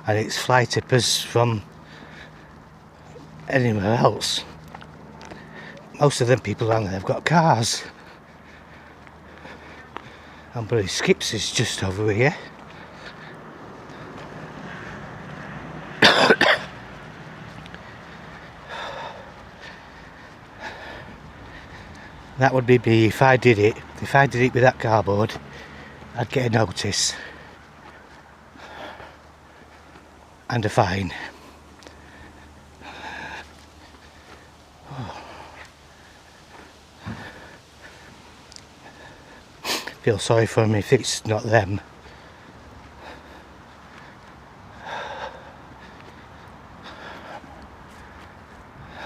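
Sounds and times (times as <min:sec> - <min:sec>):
man coughing: 0:16.0 - 0:16.8.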